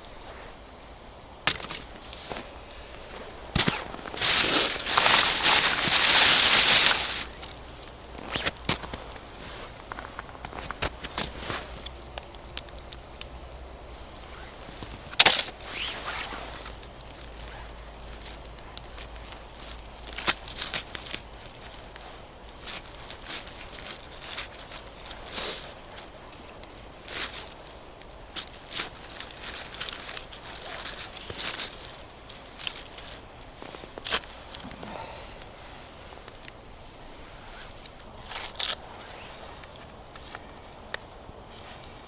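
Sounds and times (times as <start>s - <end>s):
campfire crackling: 0.0s - 42.0s
sharp pops and snaps: 1.4s - 9.2s.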